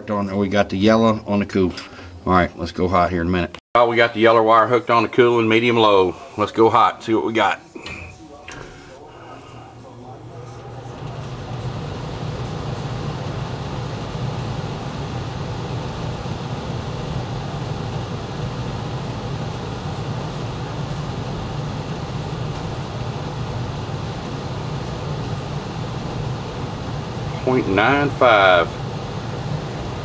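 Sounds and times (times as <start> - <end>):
furnace blower running: 7.8 - 30.0.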